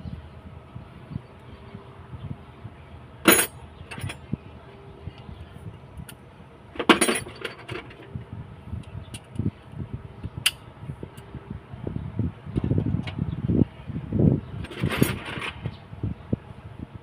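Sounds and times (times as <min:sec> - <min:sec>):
metal tools clinking: 0:03.3 - 0:04.3, 0:06.8 - 0:08.1, 0:14.6 - 0:15.7.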